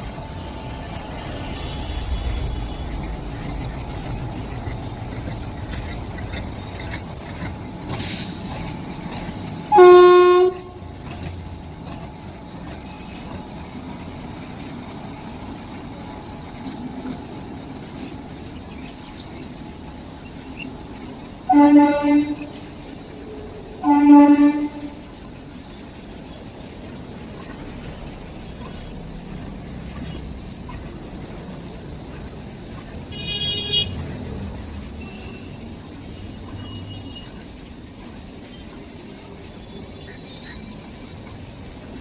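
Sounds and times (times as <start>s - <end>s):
moving train rumble: 0.0s - 42.0s
train horn blast: 9.6s - 11.2s, 21.4s - 22.7s, 23.8s - 25.1s, 33.1s - 34.0s.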